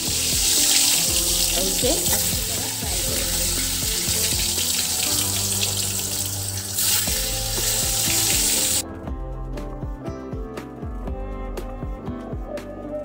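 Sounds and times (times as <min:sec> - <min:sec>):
eggplant sizzling in hot oil: 0:00.0 - 0:08.8
background music: 0:00.0 - 0:13.0.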